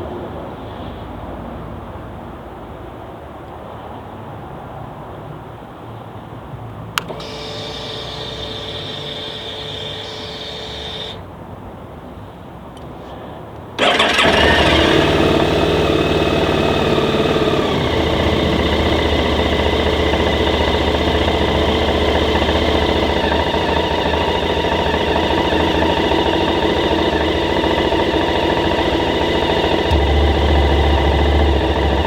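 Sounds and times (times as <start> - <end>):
motorcycle engine starting and idling: 6.9 - 11.5, 12.8 - 32.0.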